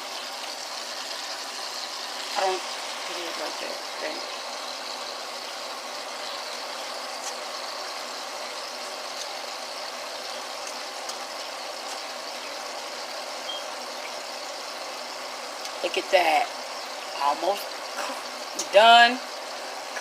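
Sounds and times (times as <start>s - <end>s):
ribs sizzling in oil: 0.0s - 20.0s.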